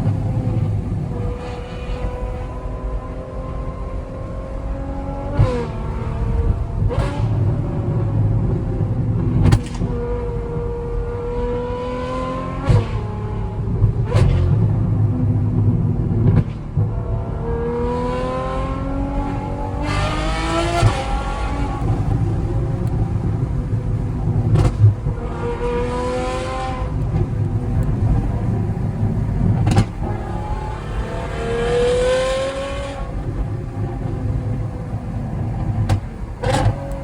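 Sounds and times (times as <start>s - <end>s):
car exhaust revving: 0.0s - 37.0s
exhaust cracks: 5.4s - 10.9s, 18.6s - 37.0s.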